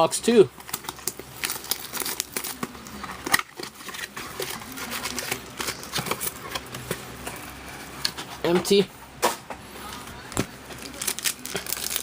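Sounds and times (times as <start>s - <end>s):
packaging crinkling and clicking: 0.6s - 8.2s, 10.4s - 12.0s.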